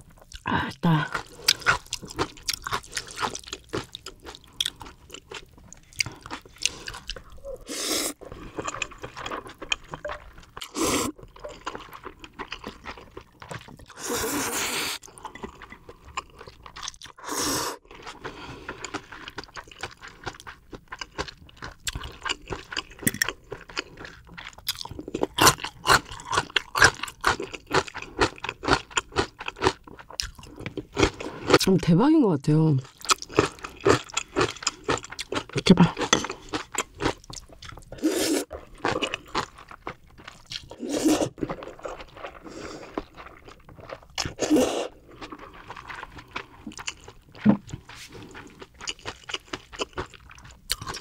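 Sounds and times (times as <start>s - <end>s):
person chewing and crunching food: 0.0s - 31.7s, 32.8s - 51.0s.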